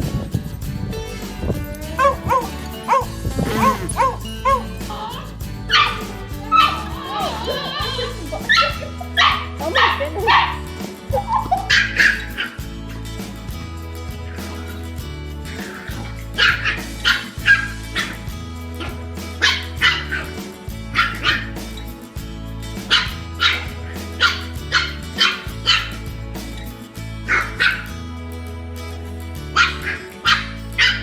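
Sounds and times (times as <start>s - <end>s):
upbeat background music: 0.0s - 31.0s
dog barking: 2.0s - 4.6s, 8.5s - 10.6s, 29.6s - 31.0s.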